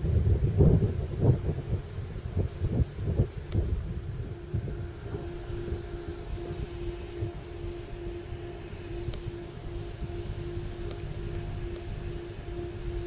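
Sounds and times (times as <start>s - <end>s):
diesel train rumble: 1.0s - 13.0s
pulsing warning tone: 2.9s - 13.0s.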